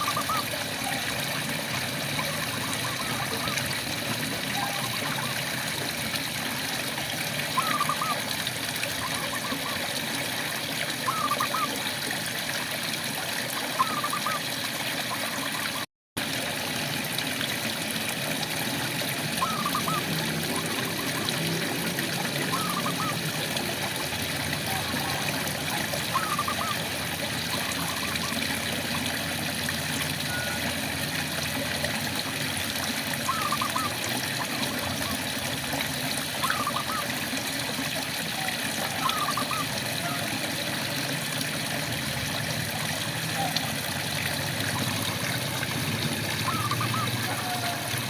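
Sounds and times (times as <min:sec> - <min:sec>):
frogs chirping: 0:19.4 - 0:20.1, 0:46.4 - 0:47.7.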